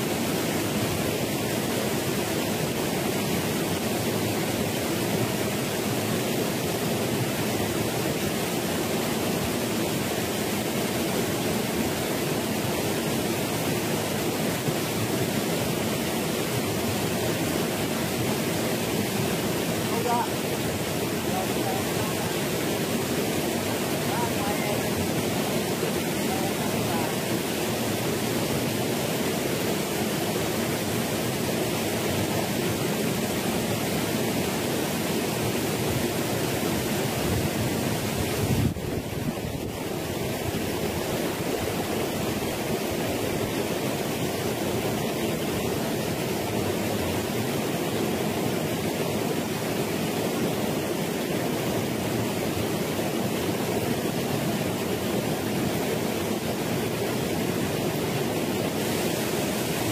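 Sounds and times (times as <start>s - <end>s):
stream rushing down small waterfall: 0.0s - 59.9s.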